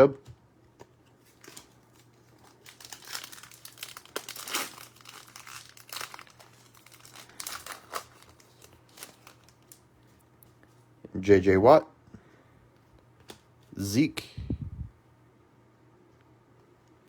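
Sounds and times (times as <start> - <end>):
plastic wrapper crinkling and tearing: 1.2 - 9.9.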